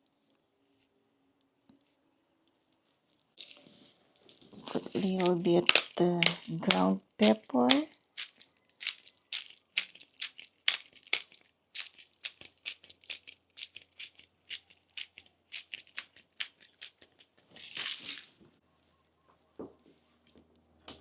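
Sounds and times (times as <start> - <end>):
pepper grinder crackling: 4.6 - 18.2.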